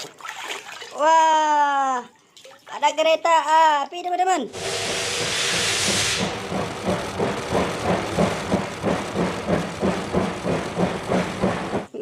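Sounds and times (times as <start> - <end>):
burst of hiss: 4.5 - 7.2
rhythmic engine-like chugging: 4.5 - 12.0
steady low hum: 4.5 - 12.0.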